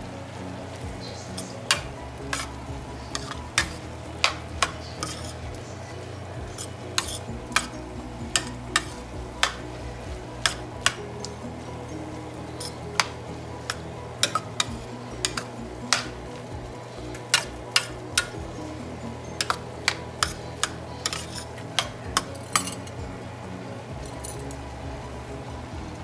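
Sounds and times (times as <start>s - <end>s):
spoon clinking against skillet: 1.4s - 5.6s, 6.5s - 9.8s, 12.4s - 18.5s, 19.2s - 23.0s.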